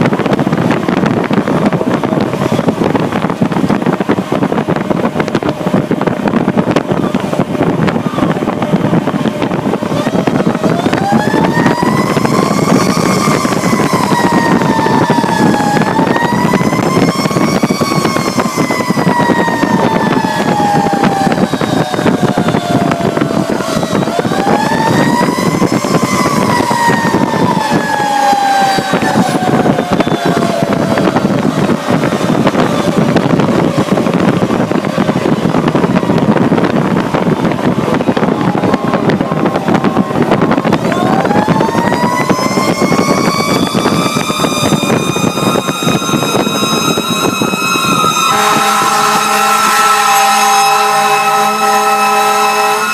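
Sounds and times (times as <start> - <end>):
truck engine and road noise: 0.0 - 52.9
mechanical siren winding: 40.8 - 51.3.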